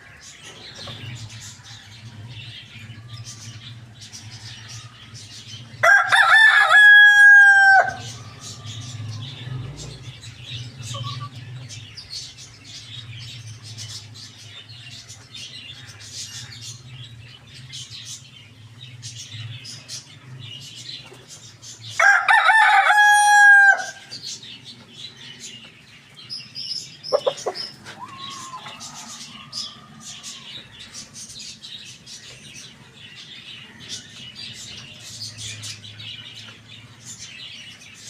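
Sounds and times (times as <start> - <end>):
small birds chirping: 0.0 - 38.0
rooster crowing: 5.8 - 9.0, 22.0 - 24.1, 27.2 - 30.7
chicken clucks: 27.0 - 30.4.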